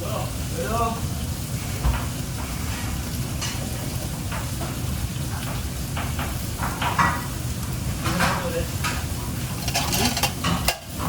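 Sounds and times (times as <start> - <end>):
food frying sizzle: 0.0 - 11.0
pans or utensils clattering: 1.8 - 7.4, 8.0 - 11.0.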